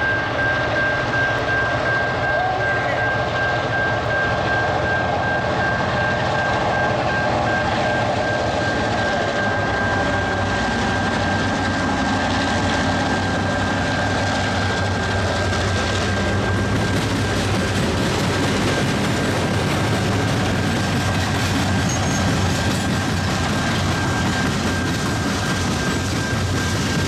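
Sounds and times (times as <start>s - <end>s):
diesel locomotive engine rumble: 0.0s - 27.0s
high-pitched whine: 0.0s - 27.0s.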